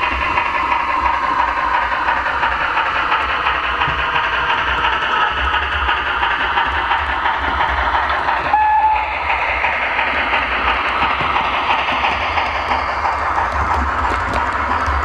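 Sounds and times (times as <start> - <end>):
model steam locomotive hissing: 0.0 - 15.0
high whistle toot: 8.5 - 9.1.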